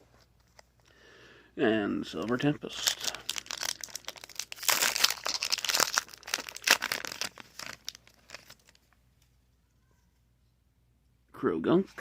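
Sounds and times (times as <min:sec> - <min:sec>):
foil wrapper crinkling and tearing: 0:02.2 - 0:08.9.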